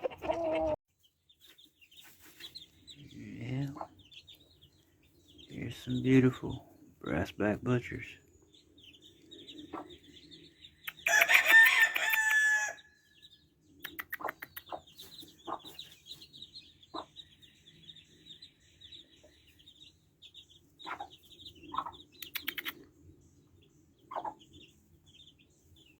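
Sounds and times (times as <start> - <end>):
roosters clucking and calling: 0.0 - 26.0
small birds chirping: 0.0 - 26.0
rooster crowing: 11.0 - 13.0.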